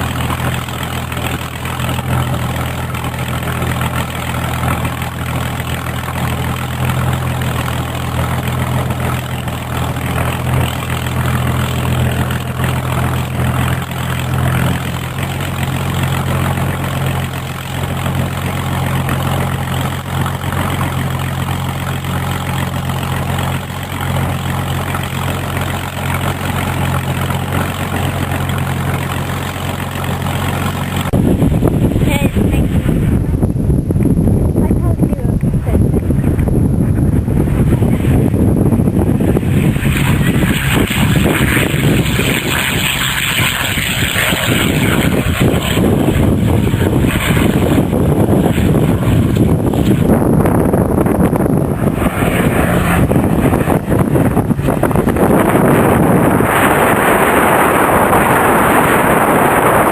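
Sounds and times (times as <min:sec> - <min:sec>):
aircraft engine idling: 0:00.0 - 0:59.9.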